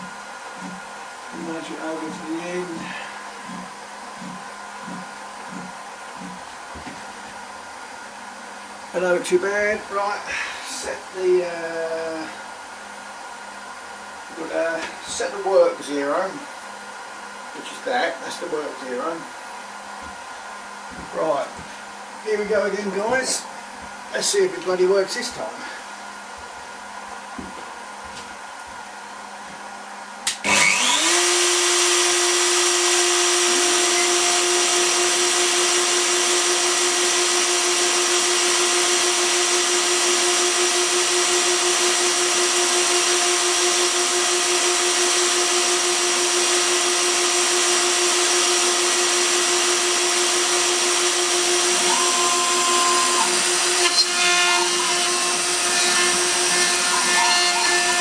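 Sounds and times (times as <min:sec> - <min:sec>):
cnc router spindle whine: 0:30.4 - 0:58.0.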